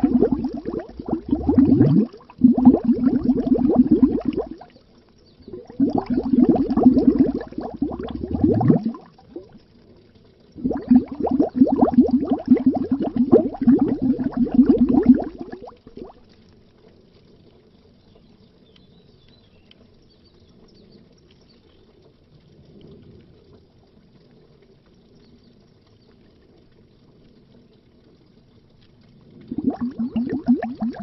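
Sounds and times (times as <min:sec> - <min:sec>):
underwater bubbling: 0:00.0 - 0:18.0, 0:19.6 - 0:31.0.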